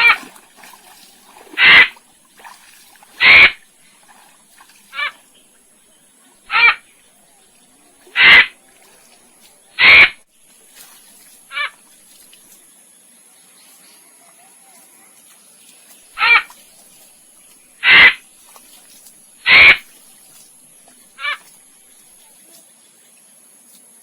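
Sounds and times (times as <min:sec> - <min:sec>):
animal giving harsh calls: 0:00.0 - 0:00.2, 0:01.6 - 0:02.0, 0:03.2 - 0:03.6, 0:04.9 - 0:05.2, 0:06.5 - 0:06.8, 0:08.1 - 0:08.6, 0:09.8 - 0:10.2, 0:11.5 - 0:11.8, 0:16.2 - 0:16.5, 0:17.8 - 0:18.2, 0:19.4 - 0:19.8, 0:21.2 - 0:21.4.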